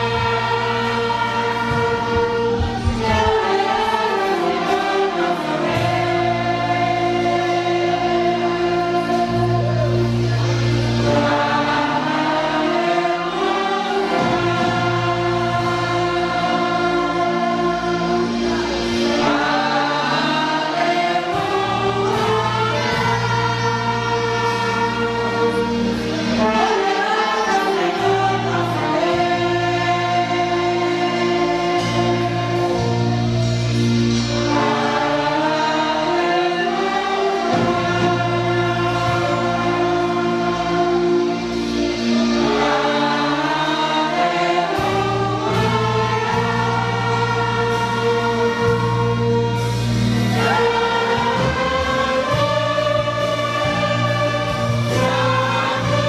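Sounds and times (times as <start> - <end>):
orchestra playing a slow hymn: 0.0 - 56.0.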